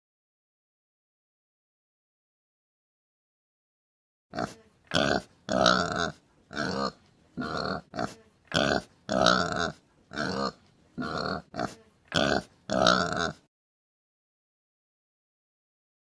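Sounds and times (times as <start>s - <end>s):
pig grunting: 4.3s - 13.5s.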